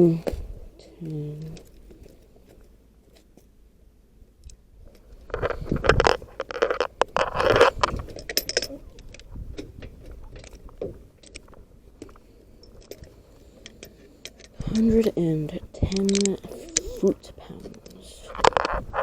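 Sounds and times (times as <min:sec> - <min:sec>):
light metal clicks: 0:04.4 - 0:19.0
metal tools scraping: 0:05.3 - 0:19.0.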